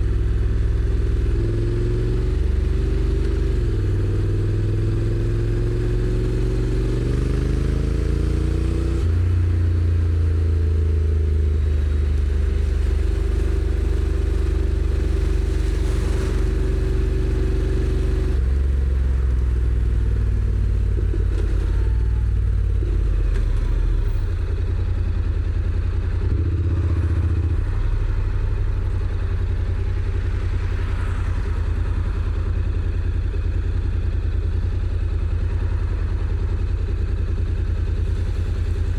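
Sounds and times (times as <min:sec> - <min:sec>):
motorcycle engine: 0:00.0 - 0:38.9.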